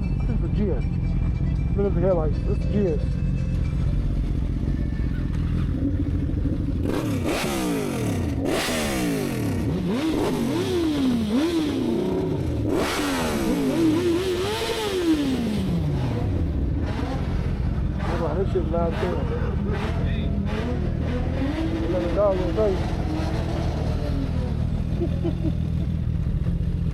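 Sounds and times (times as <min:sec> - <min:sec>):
car engine idling: 0:00.0 - 0:10.4
car engine revving hard: 0:06.8 - 0:24.6.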